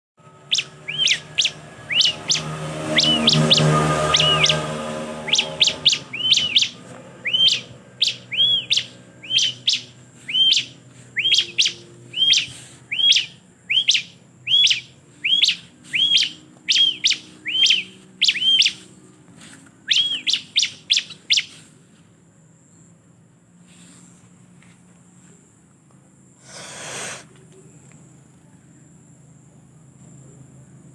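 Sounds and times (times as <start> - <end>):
bird chirping: 0.4 - 19.1, 19.8 - 21.7.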